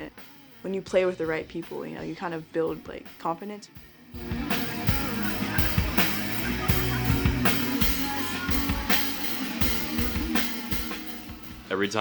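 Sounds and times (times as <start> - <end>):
drum kit: 0.0 - 12.0
electric guitar: 4.1 - 11.7
bass guitar: 4.2 - 11.7.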